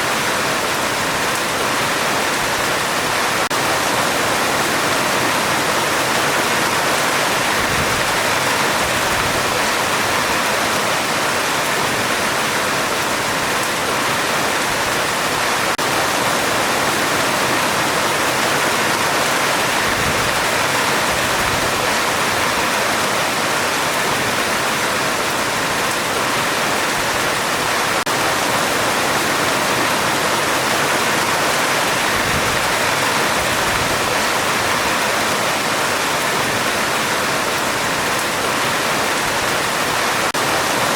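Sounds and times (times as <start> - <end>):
heavy rain on a metal roof: 0.0 - 40.9.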